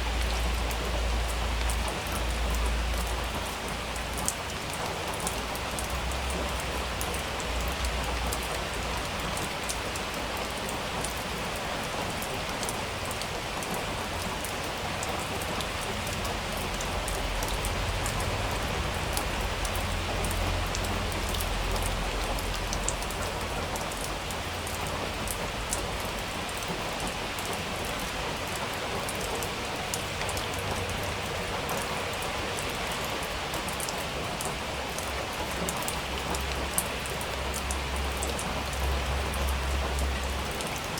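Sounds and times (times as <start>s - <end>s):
rain with ticking drops: 0.0s - 40.9s.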